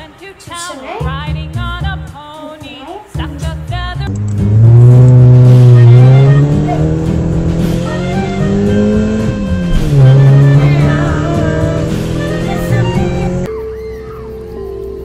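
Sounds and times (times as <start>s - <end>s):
music: 0.0s - 15.0s
car engine revving: 4.1s - 13.5s.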